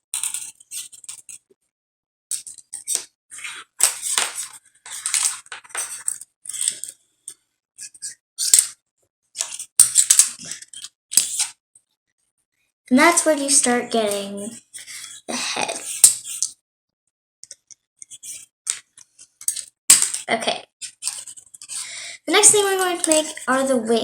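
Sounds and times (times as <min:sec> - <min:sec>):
wire scraping and rustling: 0:02.4 - 0:06.9, 0:20.8 - 0:21.8.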